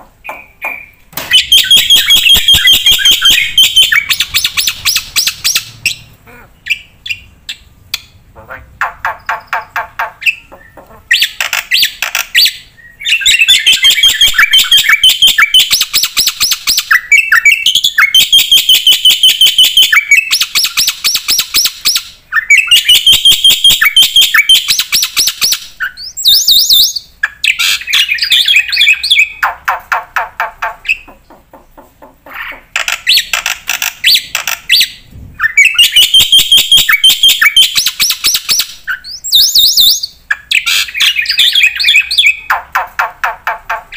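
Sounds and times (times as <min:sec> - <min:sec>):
myna singing fast chirps: 0:00.2 - 0:29.4.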